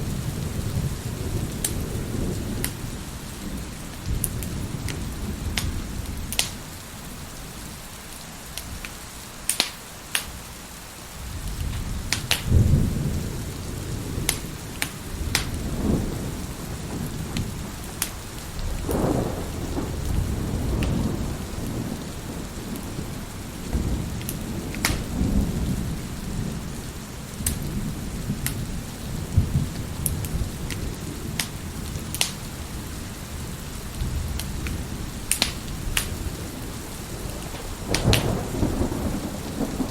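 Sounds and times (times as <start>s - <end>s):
thunder rumbling: 0.0s - 7.9s, 11.2s - 39.9s
heavy rain: 0.0s - 39.9s
wood fire crackling and popping: 1.5s - 2.8s, 3.9s - 6.7s, 8.1s - 10.5s, 11.4s - 12.8s, 14.2s - 16.1s, 16.8s - 19.2s, 20.0s - 25.8s, 27.3s - 32.7s, 33.8s - 39.9s.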